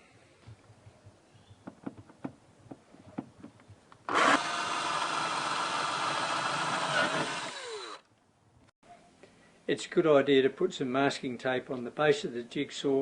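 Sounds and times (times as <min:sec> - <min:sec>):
handling clicks and knocks: 0:01.6 - 0:04.0
power tool running: 0:04.1 - 0:08.0.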